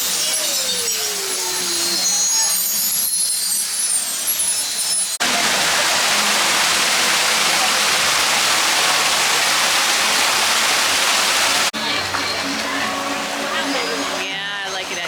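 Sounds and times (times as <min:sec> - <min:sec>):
fountain water splashing: 0:05.2 - 0:15.0.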